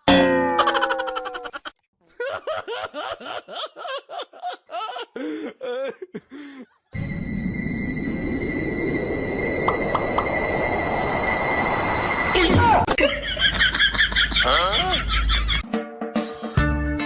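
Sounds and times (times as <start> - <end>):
person laughing: 0.6 - 7.0, 12.9 - 15.6
thin high-pitched whine: 7.0 - 12.9.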